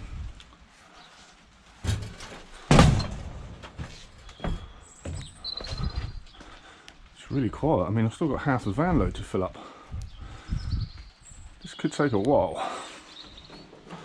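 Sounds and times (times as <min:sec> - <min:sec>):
heavy bang: 0:01.8 - 0:03.8
knocks and clunks: 0:01.8 - 0:06.2.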